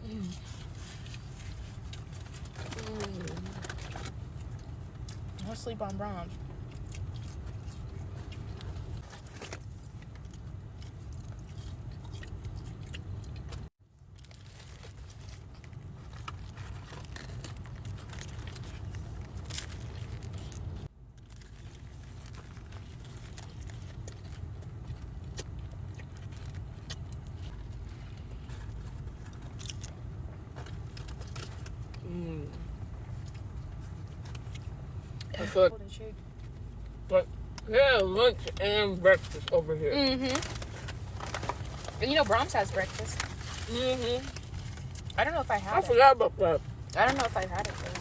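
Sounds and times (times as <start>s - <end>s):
wrapper rustling: 0.3s - 4.2s, 14.2s - 25.0s, 39.0s - 48.0s
person chewing burger: 6.6s - 32.0s.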